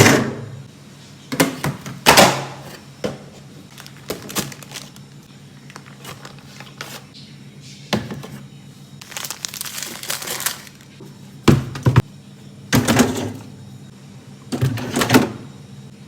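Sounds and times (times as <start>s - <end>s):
containers knocking and clunking: 1.3s - 5.0s, 11.4s - 12.1s
plastic crinkling: 3.7s - 7.1s, 9.0s - 11.0s.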